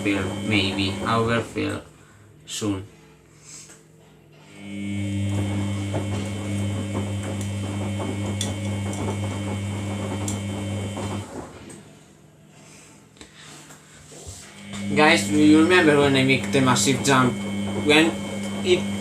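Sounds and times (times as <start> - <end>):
water inlet valve humming: 0.0 - 1.3, 4.6 - 11.2, 14.6 - 19.0
water rushing into washing machine: 0.0 - 1.5, 4.7 - 11.5, 14.8 - 19.0.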